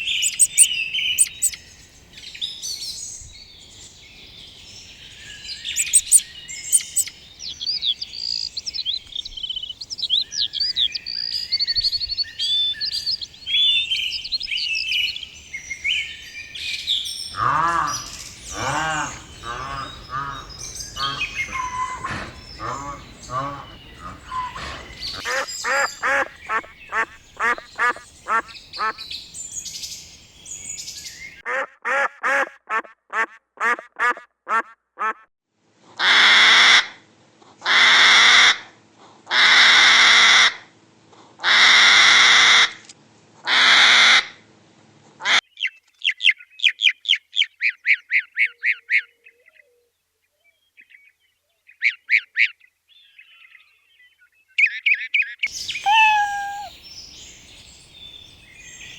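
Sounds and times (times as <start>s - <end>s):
fast high chirping: 0.0s - 1.6s, 5.7s - 7.1s, 55.7s - 56.8s
long harsh bird calls: 0.0s - 2.3s, 4.9s - 11.6s, 17.3s - 31.4s, 55.5s - 58.9s
farm birds calling: 0.0s - 15.8s, 17.3s - 31.4s, 55.5s - 58.9s.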